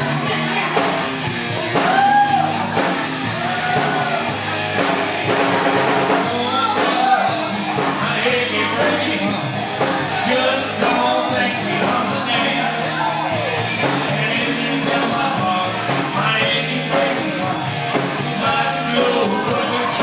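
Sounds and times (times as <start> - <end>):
rock and roll band music: 0.0 - 20.0.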